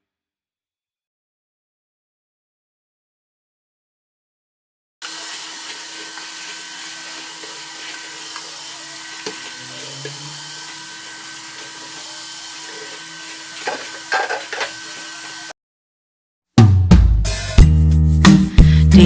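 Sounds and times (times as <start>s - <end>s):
vacuum cleaner running: 5.0s - 15.5s.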